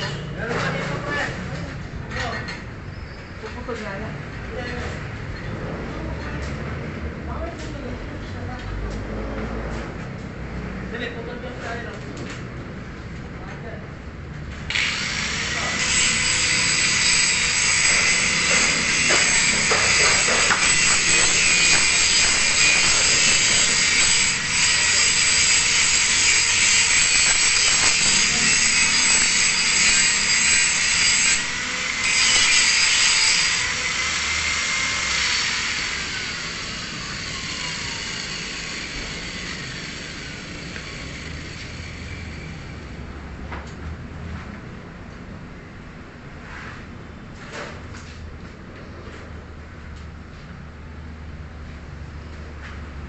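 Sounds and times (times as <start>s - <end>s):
angle grinder cutting steel: 14.7s - 42.8s.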